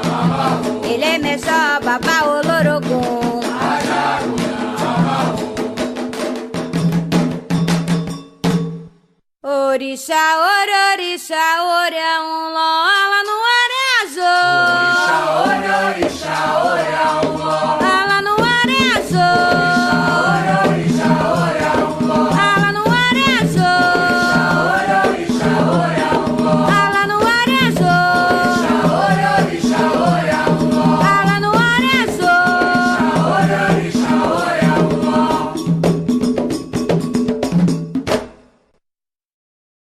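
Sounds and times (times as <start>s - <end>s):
voices singing a chant: 0.0s - 6.1s, 14.0s - 35.7s
drums and rattle beat: 0.0s - 9.0s, 15.0s - 38.4s.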